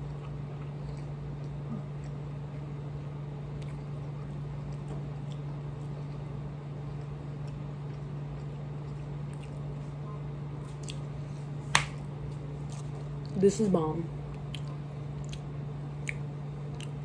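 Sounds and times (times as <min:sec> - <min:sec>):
low hum: 0:00.0 - 0:17.0
chewing mouth clicks: 0:14.3 - 0:17.0.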